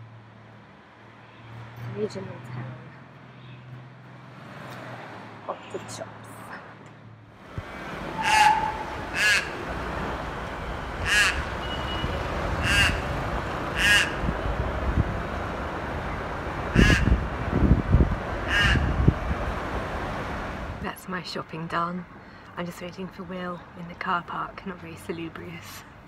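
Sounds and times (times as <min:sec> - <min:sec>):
bird calling harshly: 0:08.1 - 0:09.6, 0:11.0 - 0:11.7, 0:12.6 - 0:13.1, 0:13.7 - 0:14.3, 0:16.8 - 0:17.2, 0:18.5 - 0:18.9.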